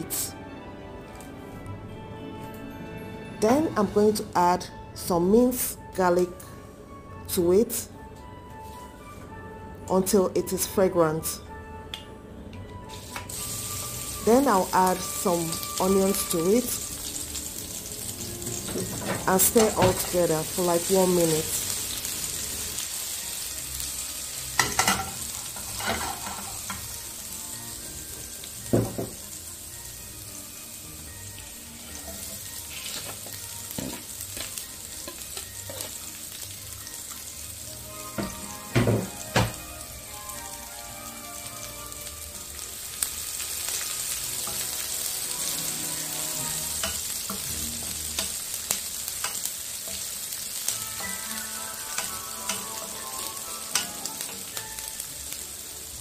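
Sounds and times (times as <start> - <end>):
garlic and onion sizzling in oil: 12.9 - 56.0.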